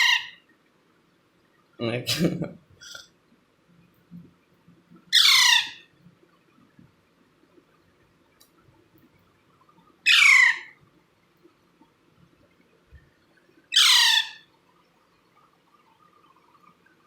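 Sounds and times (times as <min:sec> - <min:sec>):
parrot chick squawking: 0:00.0 - 0:00.4, 0:05.1 - 0:05.9, 0:10.1 - 0:10.8, 0:13.7 - 0:14.4.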